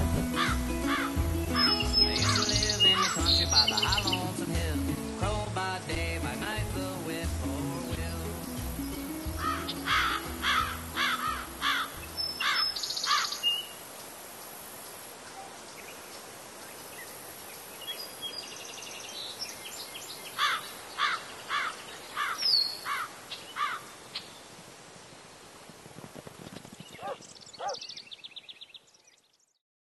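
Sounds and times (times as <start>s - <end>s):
bird calling sharp repeated notes: 0.0s - 4.4s, 8.4s - 13.7s, 27.0s - 27.8s
steady outdoor hiss: 0.0s - 29.6s.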